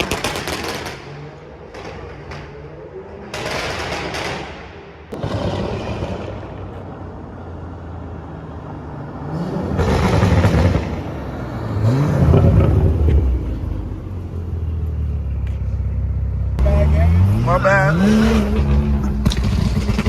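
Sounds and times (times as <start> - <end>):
car exhaust droning and revving: 5.1 - 20.0.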